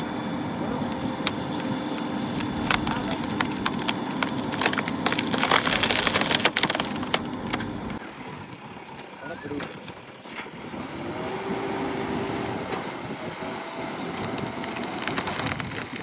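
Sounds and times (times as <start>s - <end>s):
diesel engine running: 0.0s - 16.0s
material cracking and knocking: 0.9s - 8.0s, 14.2s - 16.0s.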